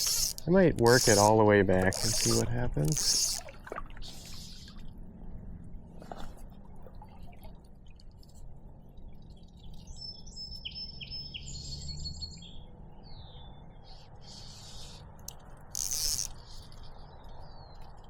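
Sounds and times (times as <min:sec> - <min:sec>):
low background rumble: 0:03.5 - 0:11.0
bird singing whistled notes: 0:09.8 - 0:13.6.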